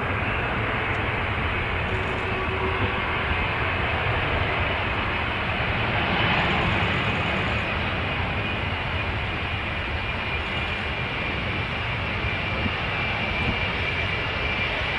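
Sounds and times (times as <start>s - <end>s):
airliner engines rushing: 0.0s - 14.9s.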